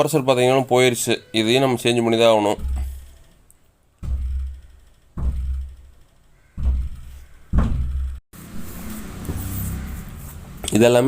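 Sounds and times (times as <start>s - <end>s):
deep drum-like booming thuds: 2.5s - 3.3s, 4.0s - 8.2s.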